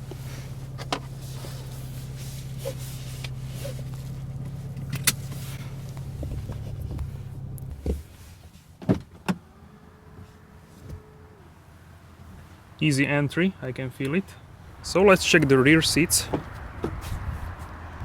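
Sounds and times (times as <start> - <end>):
car low hum: 0.0 - 18.0.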